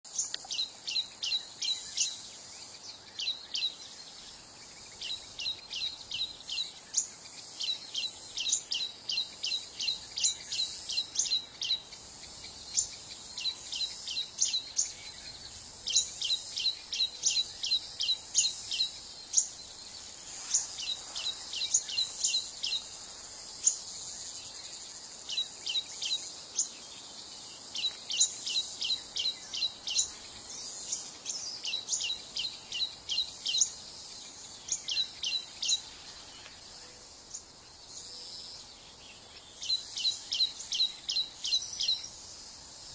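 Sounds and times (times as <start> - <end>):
bird chirping: 0.1 - 42.4.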